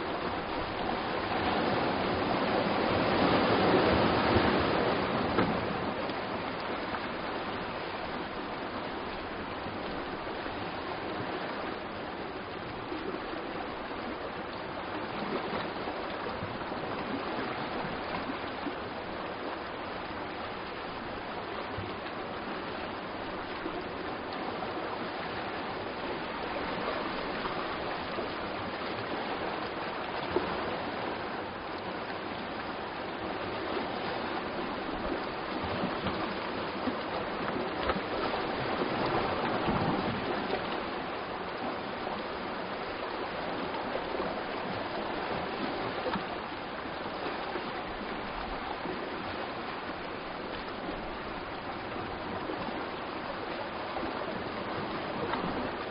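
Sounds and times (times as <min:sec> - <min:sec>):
sea surf rushing: 0:00.0 - 0:46.2.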